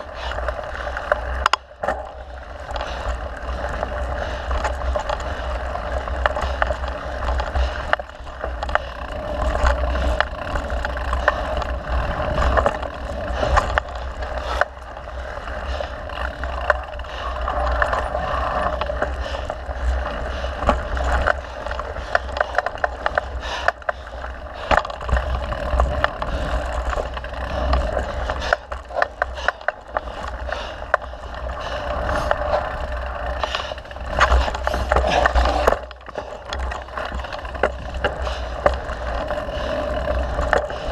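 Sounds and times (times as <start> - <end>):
bike rattling and clicking: 0.0 - 40.9
tyres rolling over dirt: 0.0 - 40.9.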